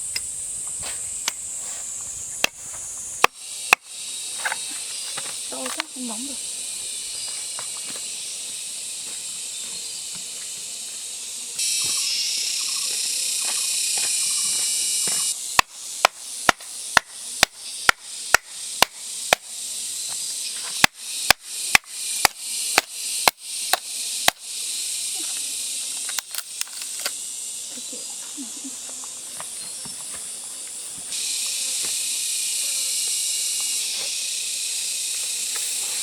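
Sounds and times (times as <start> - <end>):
insects droning: 0.0 - 36.0
blade chopping strikes: 15.6 - 19.5.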